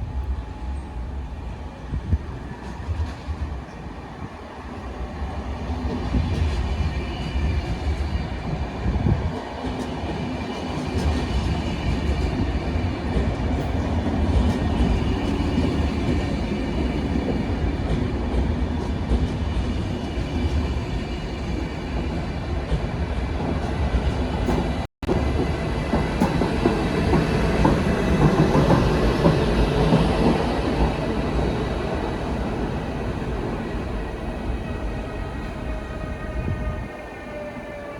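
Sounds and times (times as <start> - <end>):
train rumbling: 0.0 - 37.9
rail clicks: 22.6 - 36.0.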